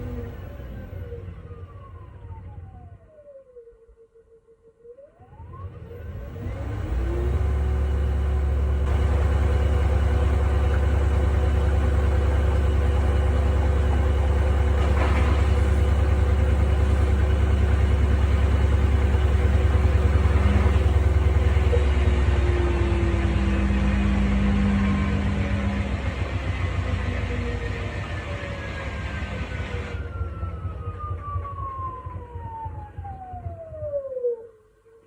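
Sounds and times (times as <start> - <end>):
washing machine drum spinning: 7.2 - 22.0.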